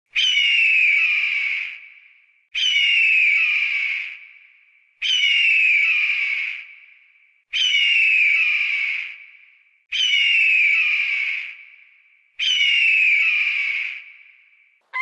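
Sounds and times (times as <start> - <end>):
bird of prey screeching: 0.1 - 1.8, 2.6 - 4.2, 5.0 - 6.6, 7.5 - 9.1, 9.9 - 11.5, 12.4 - 14.0.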